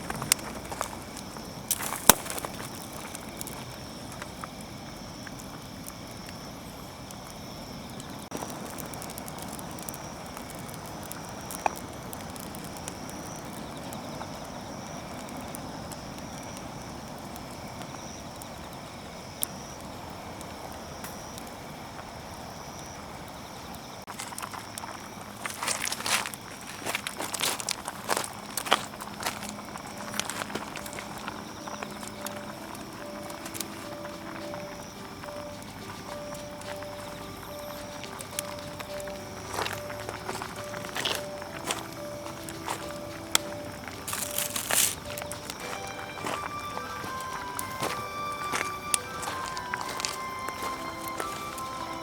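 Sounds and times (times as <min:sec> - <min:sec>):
campfire hissing and popping: 0:00.0 - 0:52.0
rustling and handling noises: 0:25.4 - 0:52.0.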